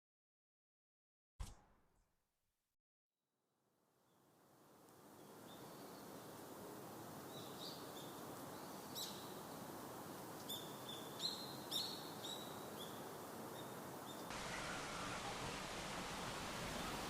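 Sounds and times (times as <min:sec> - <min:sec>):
faint steady hiss: 0:04.0 - 0:17.0.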